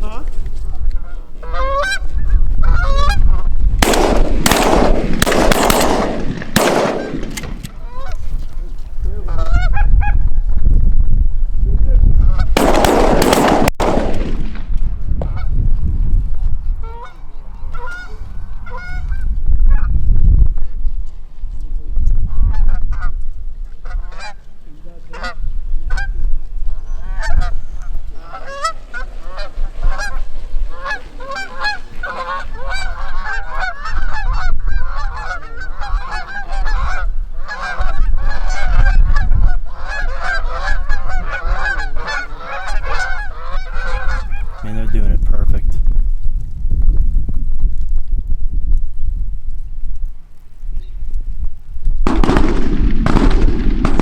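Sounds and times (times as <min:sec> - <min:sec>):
geese honking: 0:00.0 - 0:08.3, 0:16.8 - 0:19.2, 0:23.8 - 0:24.5, 0:25.1 - 0:45.0
low rumble: 0:51.0 - 0:54.0.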